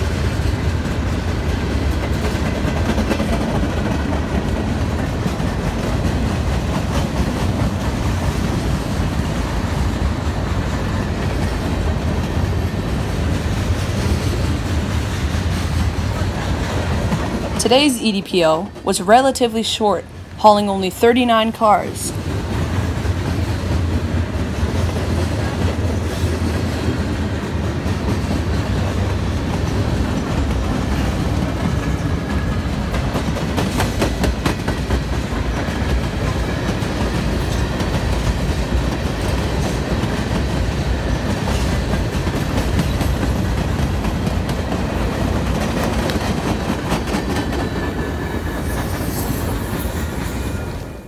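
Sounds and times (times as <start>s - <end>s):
wheels clicking over rail joints: 0.0s - 17.6s, 22.4s - 49.1s
wheels rumbling on rail: 0.0s - 51.0s.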